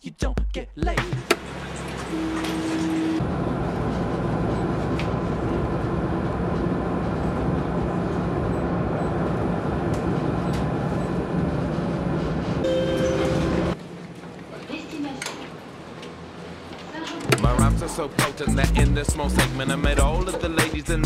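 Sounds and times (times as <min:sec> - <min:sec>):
moving vehicle rumbling: 0:01.1 - 0:12.7.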